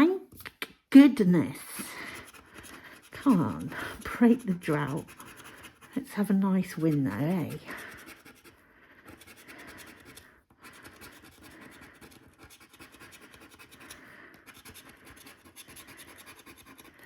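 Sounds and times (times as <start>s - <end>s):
scratchcard being scraped: 1.9s - 17.0s.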